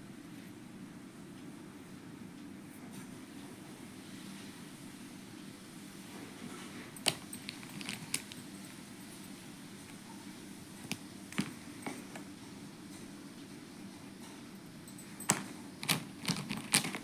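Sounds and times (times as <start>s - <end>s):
steady low hum: 0.0s - 17.0s
pens clicking and tapping: 7.0s - 8.4s, 10.8s - 12.3s, 15.2s - 17.0s.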